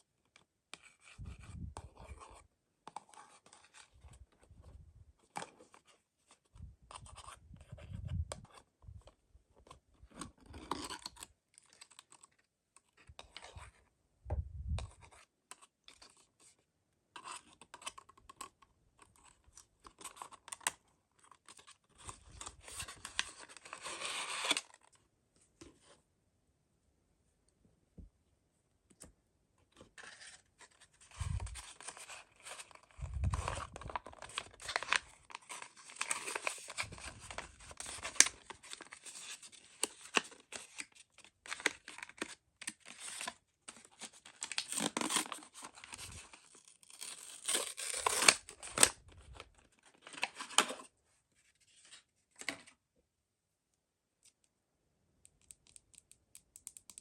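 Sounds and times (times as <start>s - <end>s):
packaging tearing and crinkling: 31.1s - 40.9s, 41.5s - 50.8s.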